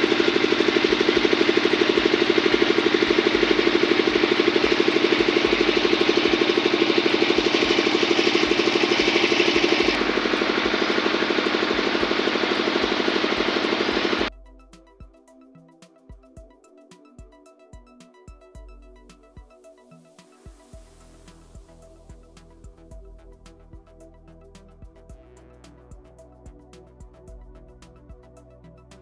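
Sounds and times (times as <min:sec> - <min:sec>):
construction machinery engine pulsing: 0:00.0 - 0:14.3.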